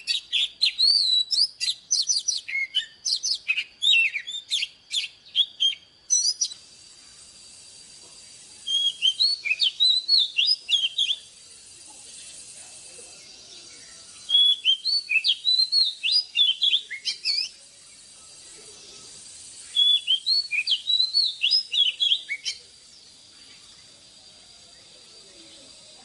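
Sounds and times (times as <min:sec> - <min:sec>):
magpie-robin singing: 0:00.0 - 0:06.6, 0:08.6 - 0:11.8, 0:13.2 - 0:18.1, 0:19.0 - 0:22.8.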